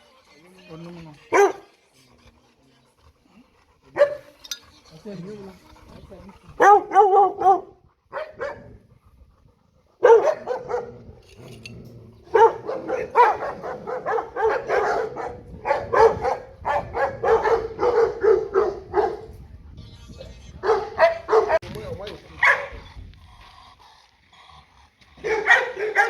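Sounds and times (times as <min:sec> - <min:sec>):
dogs barking: 0:00.8 - 0:01.8, 0:03.0 - 0:11.6, 0:12.2 - 0:19.4, 0:20.6 - 0:22.9, 0:25.1 - 0:26.0.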